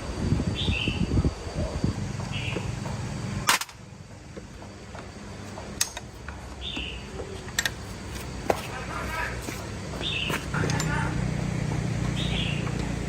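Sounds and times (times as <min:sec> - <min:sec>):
sharp metal clicks: 0:05.8 - 0:06.4.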